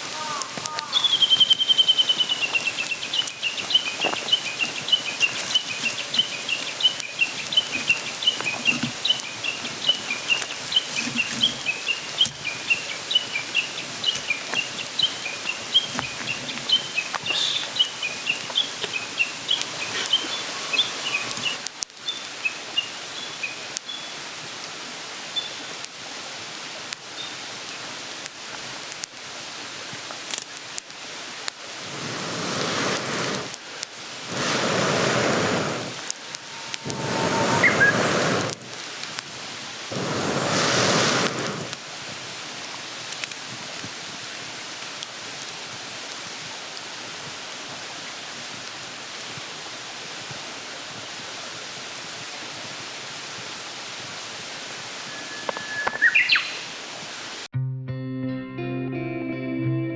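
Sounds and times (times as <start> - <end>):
mountain stream rushing: 0.0 - 57.5
bird chirping high: 0.2 - 22.2, 36.2 - 38.4, 55.0 - 56.8.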